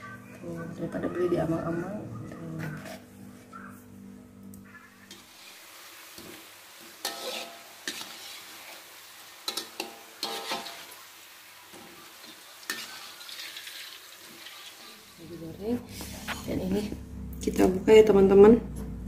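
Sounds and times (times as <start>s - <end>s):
food deep-frying in hot oil: 5.0s - 15.8s.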